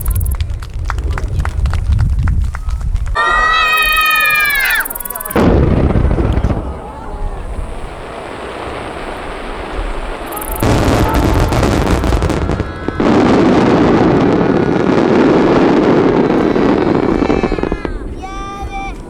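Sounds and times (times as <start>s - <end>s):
fireworks booms and crackles: 0.0s - 19.0s
rumbling echoes: 4.6s - 19.0s.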